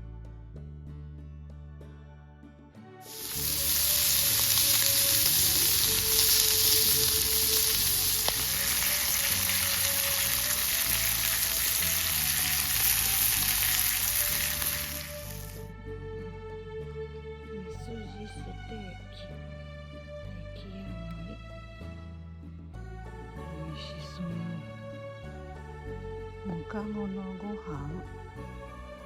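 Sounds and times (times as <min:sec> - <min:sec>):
quiet background music: 0:00.0 - 0:29.0
steak sizzling in a hot pan: 0:03.0 - 0:15.6.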